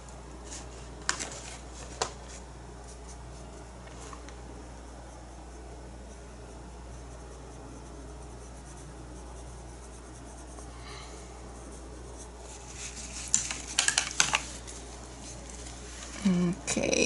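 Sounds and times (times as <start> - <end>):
steady low hum: 0.0 - 17.0
scratchy rubbing: 4.8 - 10.7, 11.5 - 16.2.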